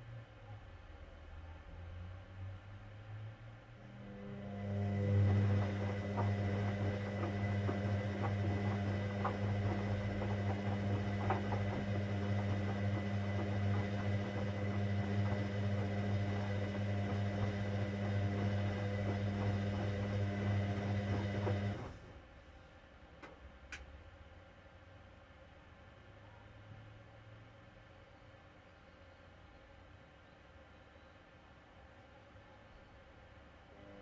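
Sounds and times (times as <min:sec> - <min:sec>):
washing machine humming: 0:03.8 - 0:22.3.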